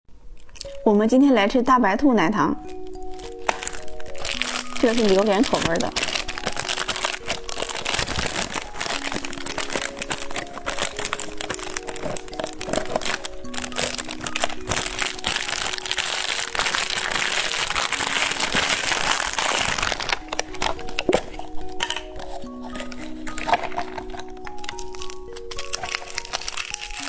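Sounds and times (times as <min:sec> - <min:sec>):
background music of held notes: 0:00.4 - 0:27.0
candy wrapper crinkling: 0:02.6 - 0:27.0.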